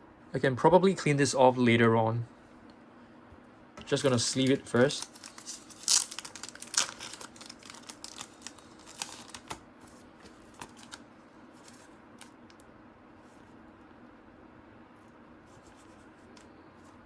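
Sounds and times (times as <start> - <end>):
plastic card sleeve crinkling: 3.8 - 12.6.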